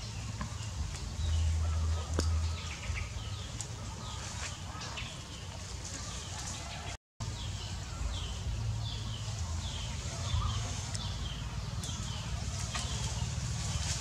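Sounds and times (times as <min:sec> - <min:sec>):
steady low rumble: 0:07.2 - 0:14.0.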